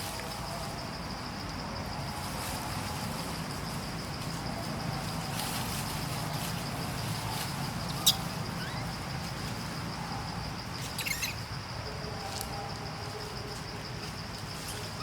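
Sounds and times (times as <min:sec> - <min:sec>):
high insect drone: 0:00.0 - 0:15.0
high chirping squeaks: 0:07.9 - 0:09.1, 0:10.8 - 0:11.4
sharp high squeak: 0:08.0 - 0:08.9, 0:10.9 - 0:11.4.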